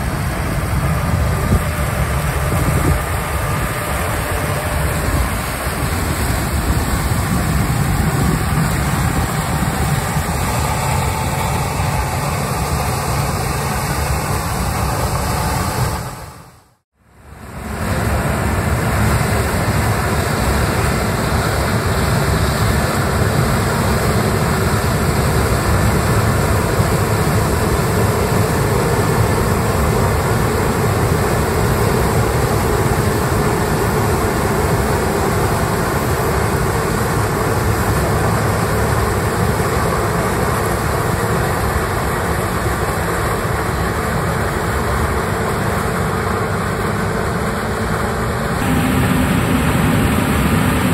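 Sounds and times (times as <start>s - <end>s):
harvesting machinery engine rumble: 17.6s - 50.9s.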